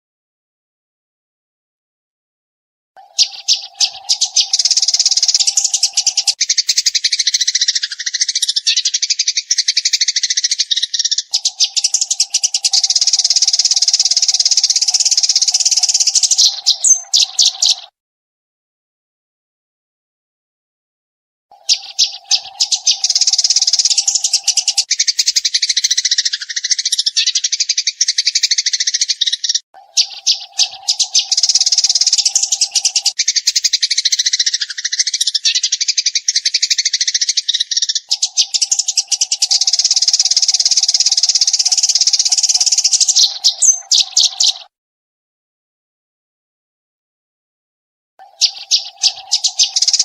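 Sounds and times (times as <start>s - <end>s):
sparrows chattering: 3.0s - 18.0s, 21.5s - 44.8s, 48.2s - 50.0s.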